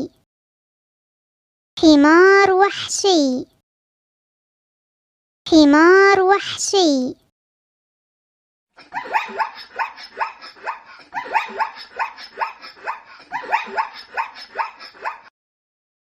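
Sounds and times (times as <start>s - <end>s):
zebra barking yelps: 8.9s - 15.3s.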